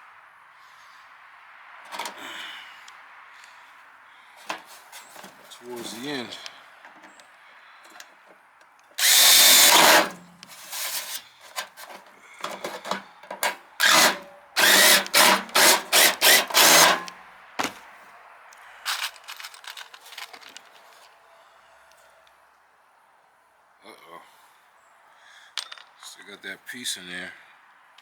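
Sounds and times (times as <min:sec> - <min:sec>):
power drill boring: 0:09.0 - 0:11.2, 0:12.4 - 0:17.1.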